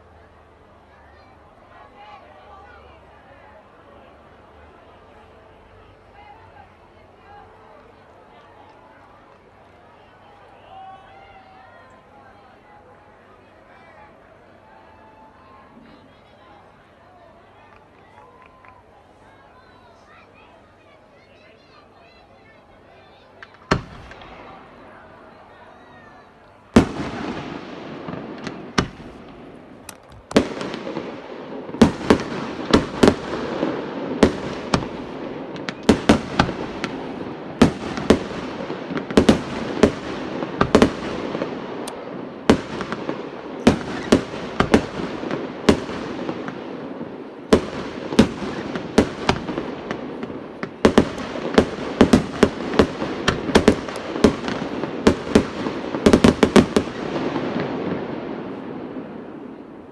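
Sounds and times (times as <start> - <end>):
fireworks bangs and crackling: 21.6 - 59.9.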